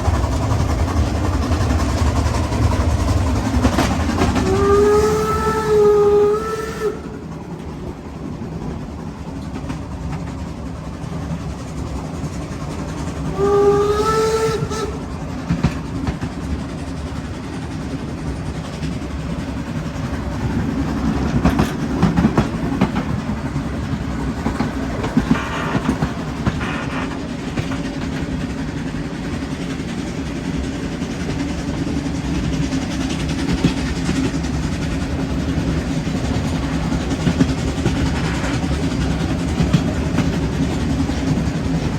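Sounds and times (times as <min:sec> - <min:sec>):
steam train rumbling: 0:00.0 - 0:41.9
steam whistle blast: 0:04.3 - 0:07.3, 0:13.3 - 0:15.1
clanks and clicks: 0:20.4 - 0:28.7.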